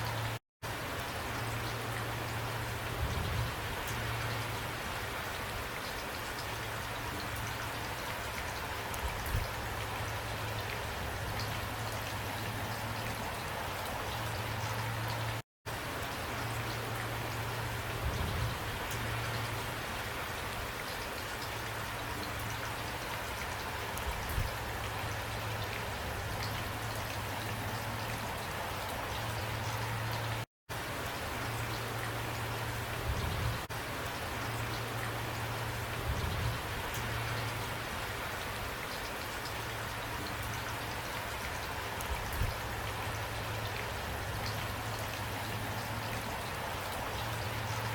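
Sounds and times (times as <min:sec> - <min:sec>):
rain falling: 0:00.0 - 0:47.9.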